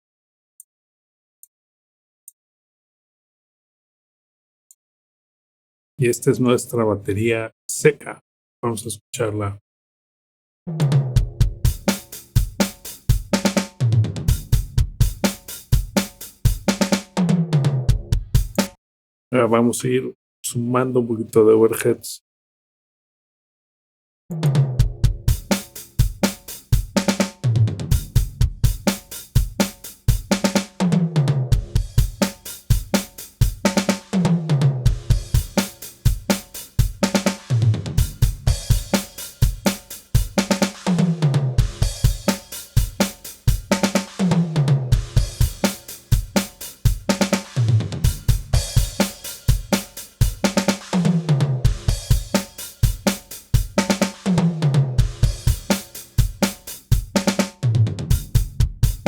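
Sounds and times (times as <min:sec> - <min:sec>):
drum fill on toms: 0:10.7 - 0:18.8, 0:24.3 - 0:59.0
rock drum groove: 0:10.7 - 0:18.8, 0:24.3 - 0:59.0.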